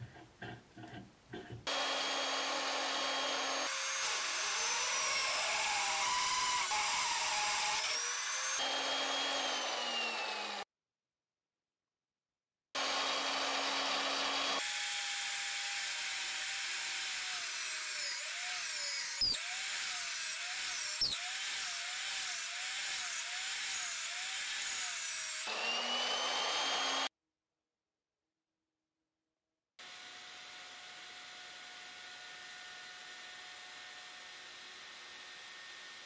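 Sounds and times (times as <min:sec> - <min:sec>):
drill press boring into wood: 0:01.7 - 0:10.6.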